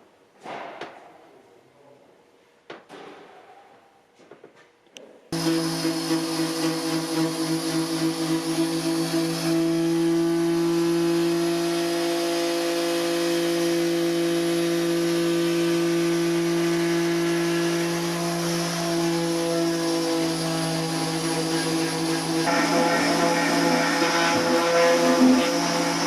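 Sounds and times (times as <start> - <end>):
machine motor humming: 5.4 - 26.0.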